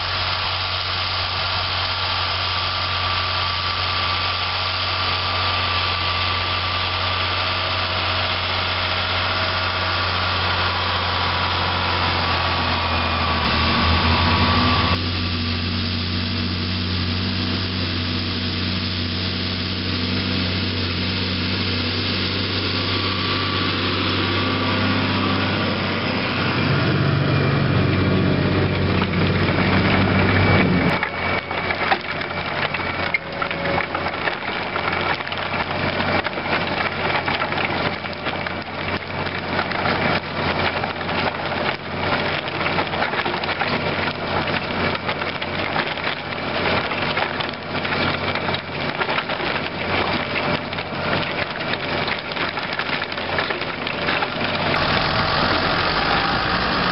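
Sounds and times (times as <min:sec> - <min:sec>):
tractor engine running: 0:00.0 - 0:56.9.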